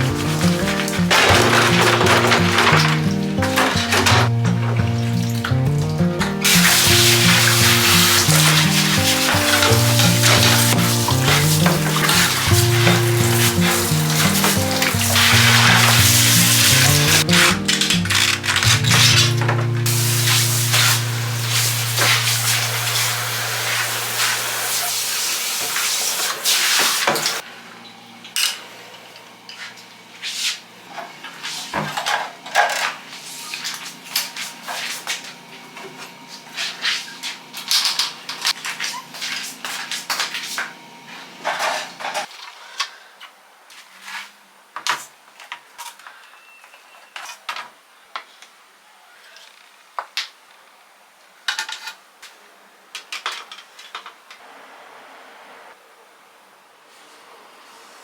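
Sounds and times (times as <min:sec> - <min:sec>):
hard objects clattering: 0:00.0 - 0:04.8
loud steady hiss: 0:00.0 - 0:27.4, 0:54.4 - 0:55.8.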